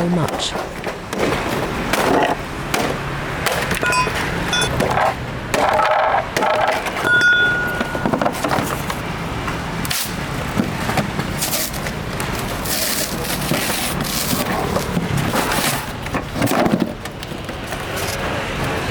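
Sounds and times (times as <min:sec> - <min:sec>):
sheet metal scraping and cracking: 0:09.9 - 0:18.3.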